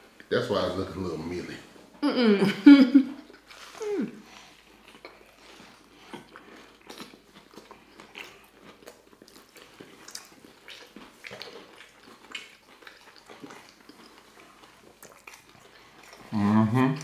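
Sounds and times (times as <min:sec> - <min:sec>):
chewing and biting food: 0:03.2 - 0:17.0
mouth clicks and crunches: 0:06.0 - 0:16.3.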